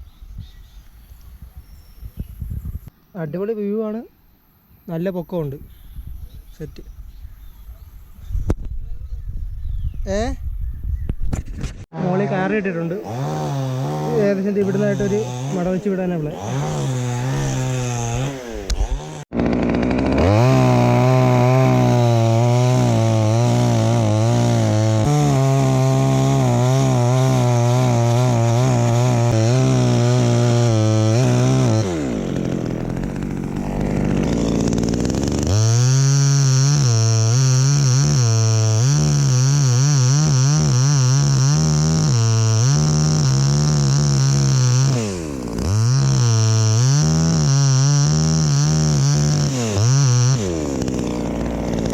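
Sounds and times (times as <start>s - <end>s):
chainsaw cutting wood: 12.8s - 51.9s.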